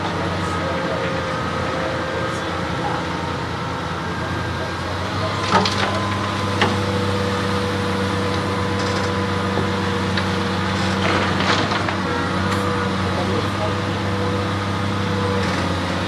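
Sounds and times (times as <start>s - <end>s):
excavator diesel engine: 0.0s - 16.0s.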